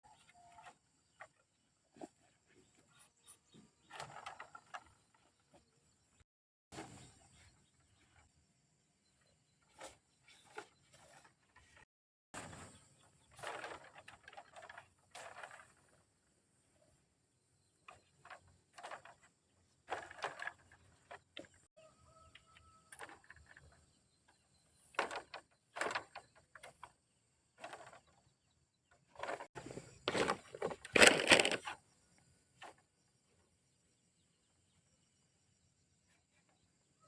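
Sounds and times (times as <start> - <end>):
rustling handling noise: 29.0 - 31.8.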